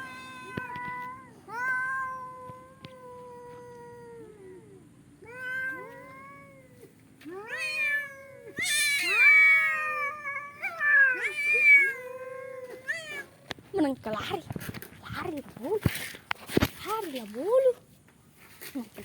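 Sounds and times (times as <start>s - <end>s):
cats yowling: 0.0s - 13.4s.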